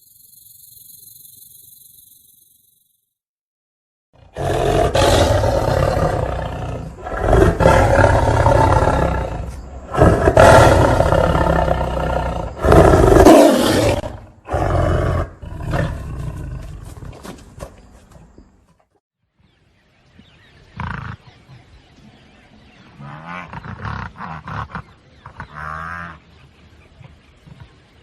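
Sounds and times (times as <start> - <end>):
large animal roaring: 4.2 - 16.7.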